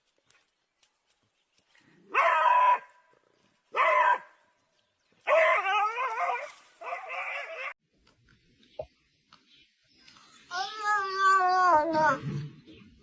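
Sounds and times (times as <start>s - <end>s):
dog howling: 5.3s - 7.8s.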